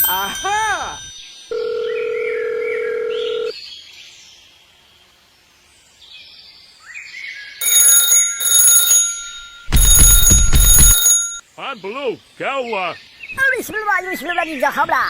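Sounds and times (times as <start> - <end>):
pulsing bell-like alarm ringing: 0.0 - 1.8, 7.6 - 11.4
electronic beep: 9.7 - 11.2.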